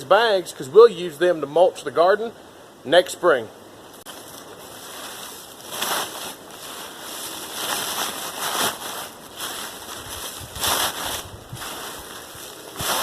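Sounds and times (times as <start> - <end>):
dry leaves rustling: 4.0 - 13.0.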